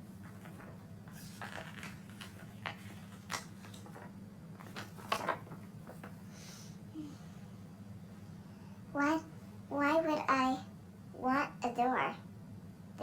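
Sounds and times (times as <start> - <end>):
steady low hum: 0.0 - 13.0
paper book rustling and clicking: 0.2 - 6.2.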